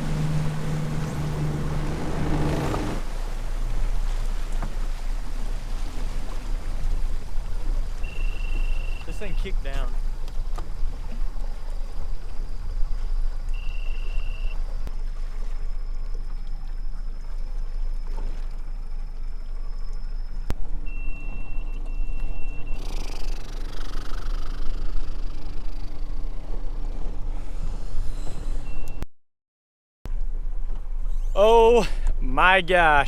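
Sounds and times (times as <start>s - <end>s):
boat rumble: 0.0s - 29.0s, 30.1s - 33.0s
high electronic beep: 20.8s - 22.9s.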